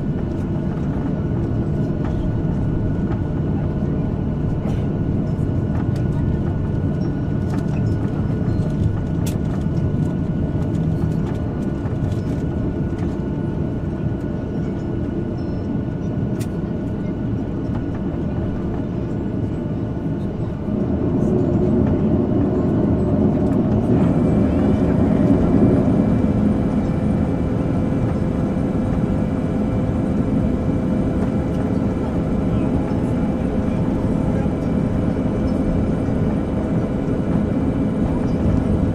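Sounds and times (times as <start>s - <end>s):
jet engine and airflow roar: 0.0s - 38.9s.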